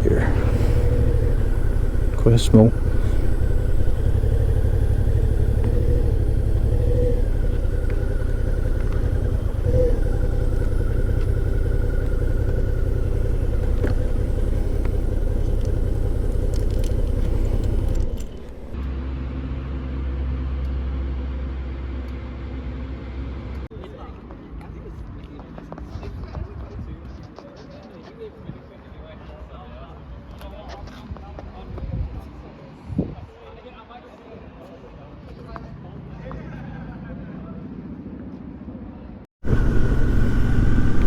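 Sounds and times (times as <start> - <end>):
motorcycle engine running: 0.0 - 19.4, 39.4 - 41.0.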